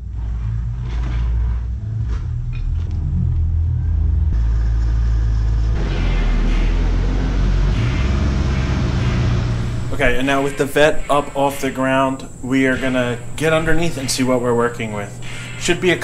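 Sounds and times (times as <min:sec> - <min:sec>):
car engine rumble: 0:00.0 - 0:11.4.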